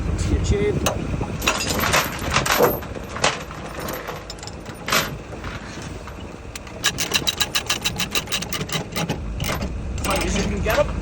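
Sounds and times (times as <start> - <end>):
steel chains clinking: 1.4 - 5.2, 6.8 - 10.8
ratchet binder clicking: 6.6 - 10.3.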